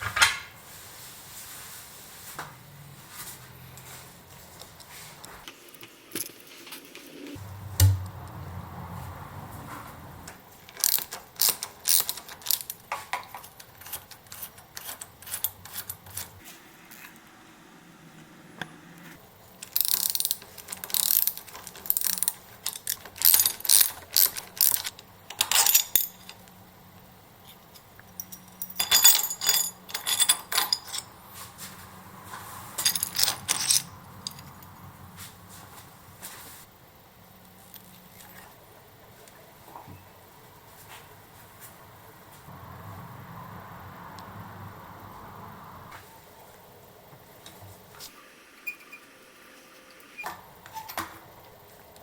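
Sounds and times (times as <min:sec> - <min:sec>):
ratchet wrench clicking: 0:10.7 - 0:12.8, 0:19.6 - 0:26.0.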